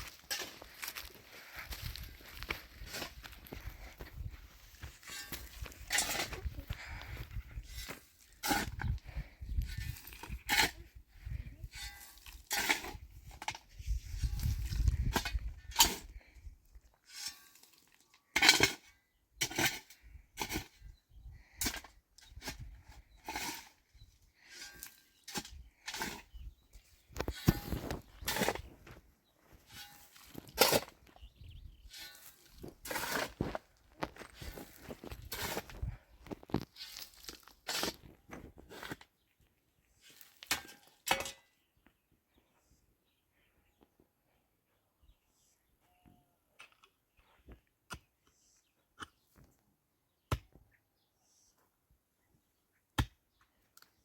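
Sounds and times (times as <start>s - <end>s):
footsteps crunching on dry ground: 0.0s - 8.4s, 32.0s - 38.6s.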